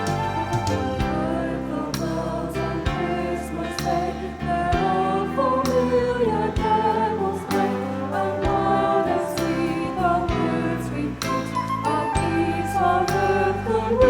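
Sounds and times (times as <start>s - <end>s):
choir singing held notes: 0.0s - 14.0s
instrumental accompaniment: 0.0s - 14.0s.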